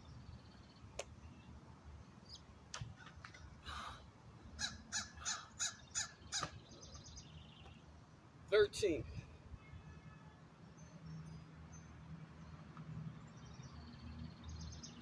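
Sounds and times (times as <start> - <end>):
bird harsh calls: 4.6 - 7.5.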